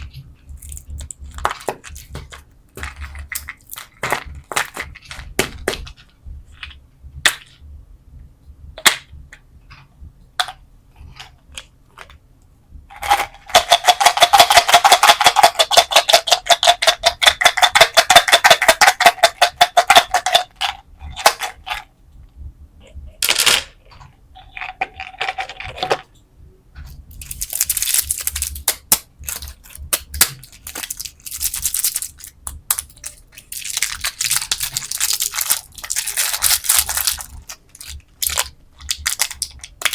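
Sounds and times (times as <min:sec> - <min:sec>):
hard candies rattling: 0:00.0 - 0:06.1, 0:12.9 - 0:21.9, 0:27.1 - 0:39.9
crinkly wrapper rustling: 0:27.2 - 0:39.9
sharp clicks of candy packaging: 0:27.2 - 0:39.9.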